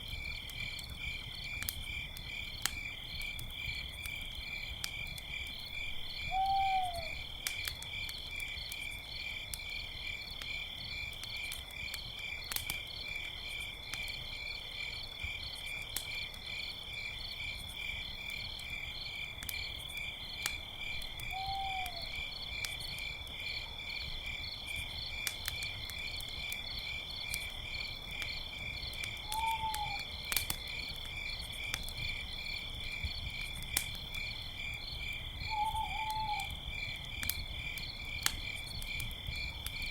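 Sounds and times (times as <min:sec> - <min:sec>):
campfire crackling: 0:00.0 - 0:39.9
crickets chirring: 0:00.1 - 0:39.9
owl hooting: 0:06.3 - 0:07.2, 0:21.3 - 0:22.2, 0:29.3 - 0:30.0, 0:35.5 - 0:36.5.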